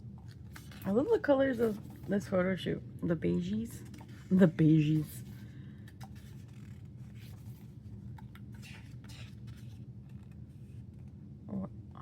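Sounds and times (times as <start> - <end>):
steady low hum: 0.0 - 12.0
paper pages rustling: 0.2 - 2.4, 3.8 - 11.2.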